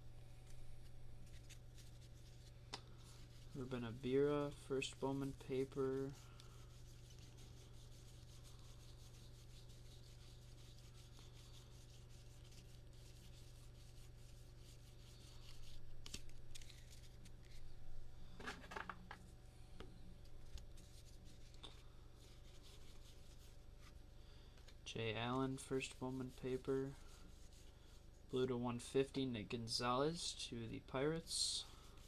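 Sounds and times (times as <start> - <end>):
steady low hum: 0.0 - 32.0
trading cards rubbing together: 0.4 - 17.7.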